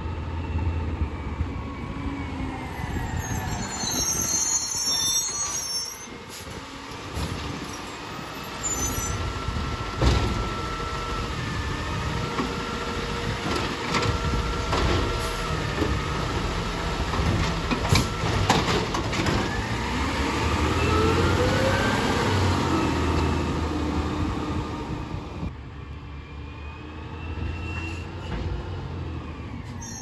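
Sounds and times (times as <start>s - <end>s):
garbage truck engine rumble: 2.2s - 25.5s.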